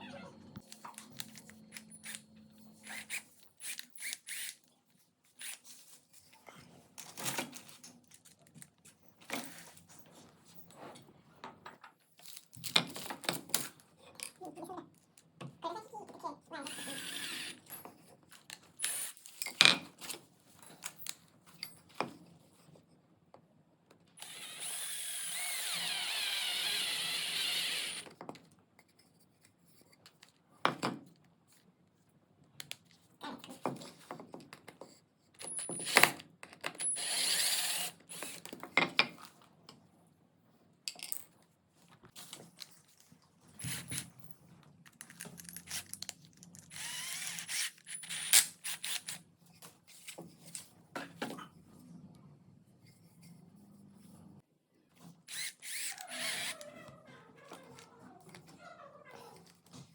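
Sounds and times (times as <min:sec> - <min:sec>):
cordless drill motor whine: 0:16.6 - 0:17.6, 0:24.2 - 0:28.0, 0:46.7 - 0:49.0, 0:55.3 - 0:56.6.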